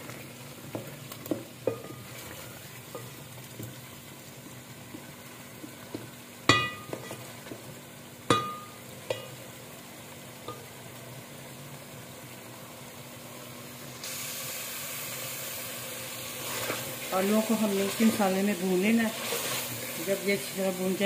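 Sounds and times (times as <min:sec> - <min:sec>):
potatoes sizzling in a pot: 0:00.0 - 0:21.0
spatula knocking metal pot: 0:06.5 - 0:07.2, 0:08.3 - 0:09.4.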